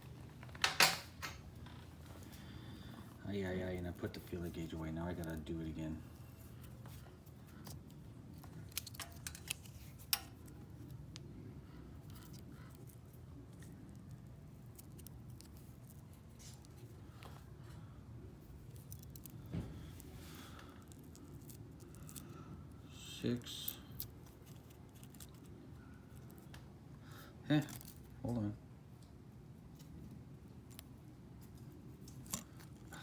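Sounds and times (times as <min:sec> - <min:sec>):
steady low hum: 0:00.0 - 0:33.0
metal blades clicking and clinking: 0:08.8 - 0:10.4.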